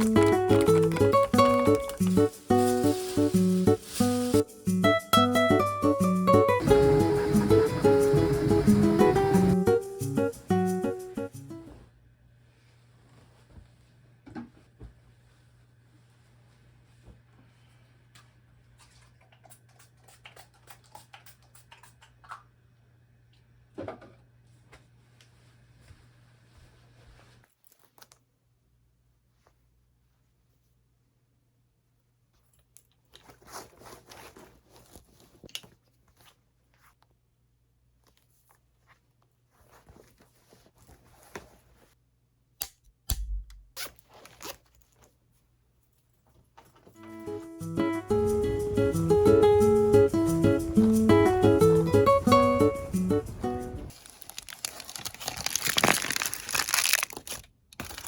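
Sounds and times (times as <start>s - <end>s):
soft rustling of objects: 11.6s - 19.4s, 24.4s - 31.1s, 31.9s - 42.0s, 44.0s - 47.0s, 53.9s - 58.0s.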